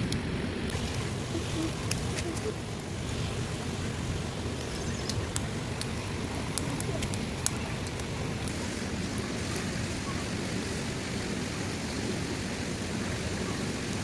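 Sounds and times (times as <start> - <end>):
raindrop taps: 0.0 - 2.9, 4.5 - 10.2
steady rain falling: 0.0 - 14.0.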